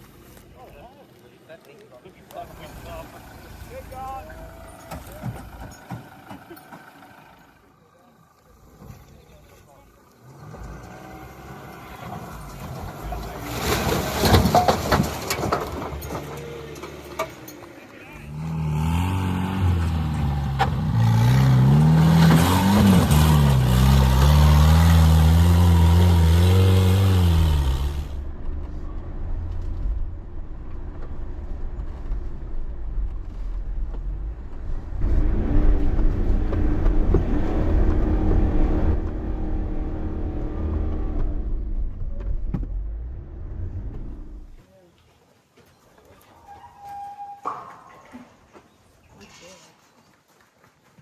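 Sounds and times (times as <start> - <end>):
vehicle engine revving: 10.0 - 14.3, 15.8 - 44.6.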